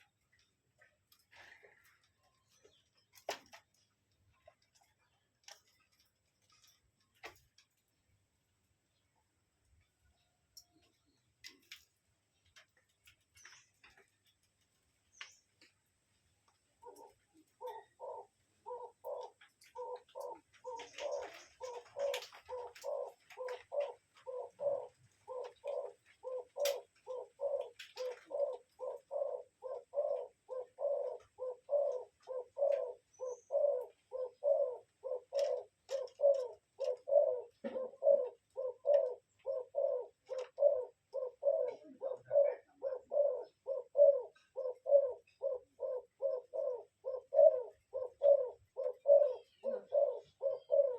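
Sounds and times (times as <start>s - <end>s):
bird giving low calls: 16.8s - 50.9s.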